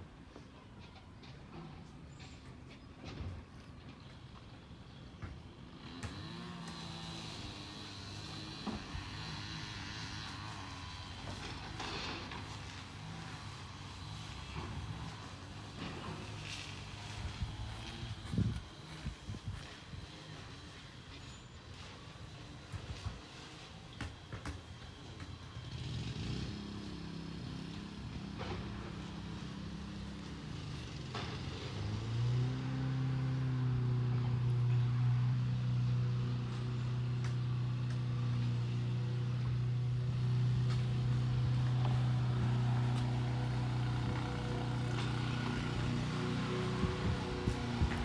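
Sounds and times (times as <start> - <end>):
truck engine running: 25.2 - 48.0.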